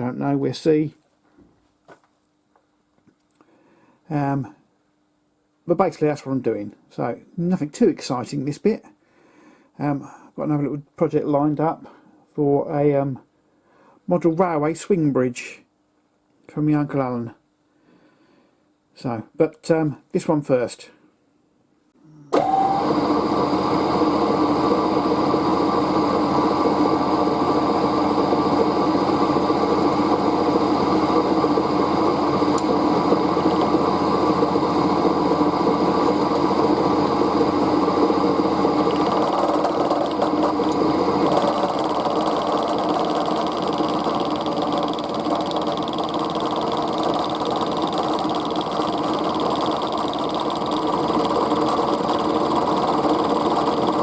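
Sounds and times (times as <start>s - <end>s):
machine tool machining steel: 23.6s - 54.0s.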